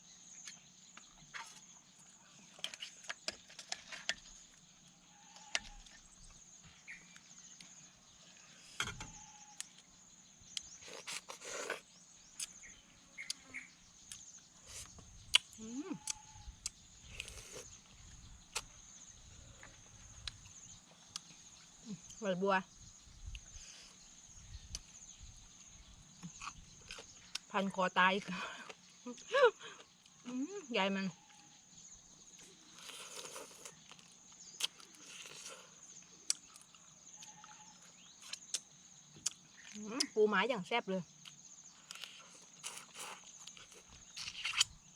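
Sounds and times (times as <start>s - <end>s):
high insect trill: 0.0s - 44.9s
crunching and chewing: 9.2s - 22.2s, 26.0s - 27.7s, 32.2s - 40.2s, 41.2s - 44.9s
eating crunch: 10.6s - 12.6s, 32.4s - 38.6s, 41.2s - 44.9s.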